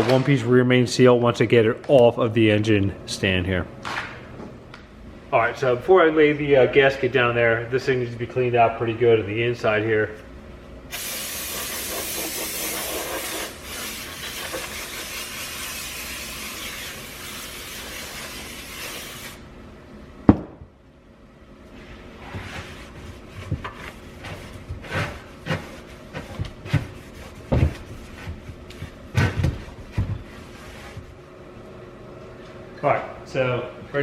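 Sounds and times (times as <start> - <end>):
aerosol spray hissing: 10.9 - 19.4
knocks and rubbing: 22.2 - 31.2.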